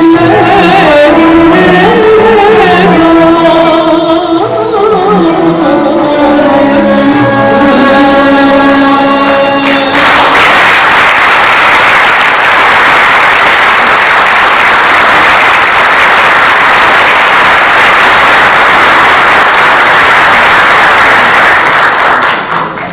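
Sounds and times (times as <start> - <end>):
audience applauding: 9.6 - 22.9.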